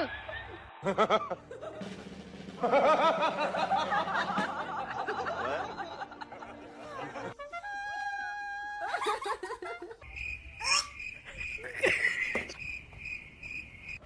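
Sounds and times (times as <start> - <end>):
voices laughing and snickering: 2.6 - 7.4, 8.8 - 10.0, 11.3 - 12.6.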